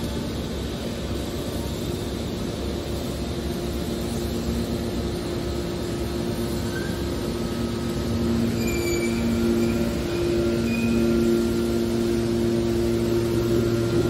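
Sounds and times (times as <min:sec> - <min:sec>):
baler machine low hum: 0:00.0 - 0:14.0
faint high squeals: 0:06.6 - 0:07.2, 0:08.4 - 0:11.4.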